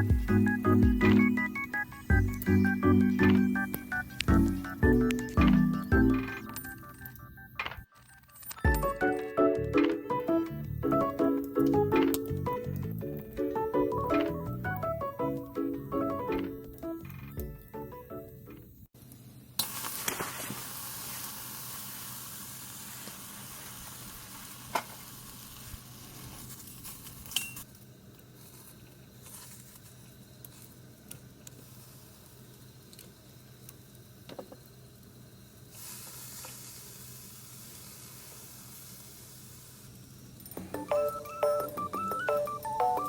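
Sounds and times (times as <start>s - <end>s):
food sizzling on grill: 19.6s - 27.7s, 28.3s - 41.4s.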